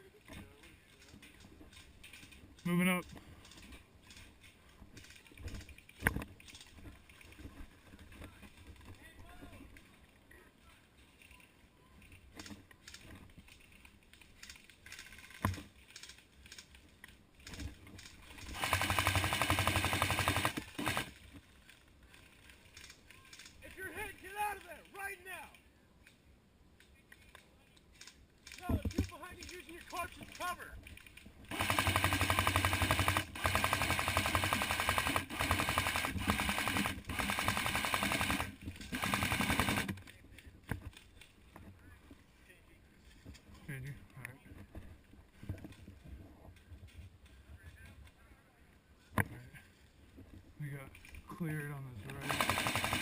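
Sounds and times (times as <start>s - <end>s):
airsoft gun full-auto burst: 18.4s - 21.2s, 31.5s - 39.9s, 52.2s - 53.0s.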